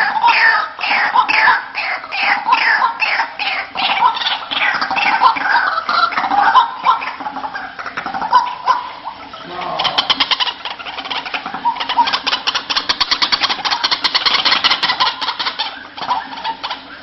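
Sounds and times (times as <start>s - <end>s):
waterhens calling: 0.0s - 17.0s.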